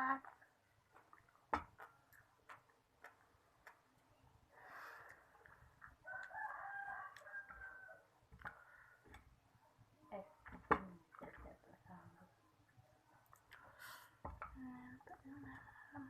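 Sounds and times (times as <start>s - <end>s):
rooster crowing: 6.0s - 8.1s.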